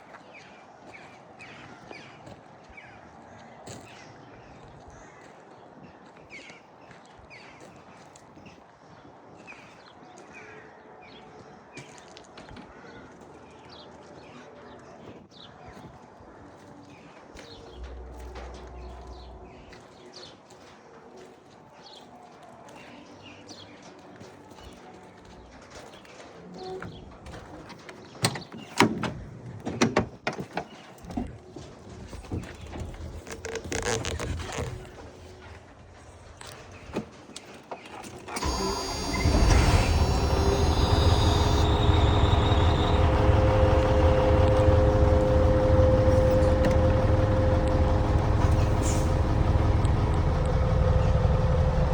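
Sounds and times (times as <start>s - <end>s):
lorry diesel engine rumbling: 17.7s - 19.7s, 38.4s - 51.9s.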